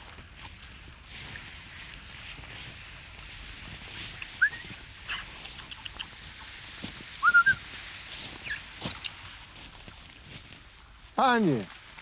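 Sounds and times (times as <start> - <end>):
wild birds calling: 4.2 - 7.6, 8.3 - 9.5.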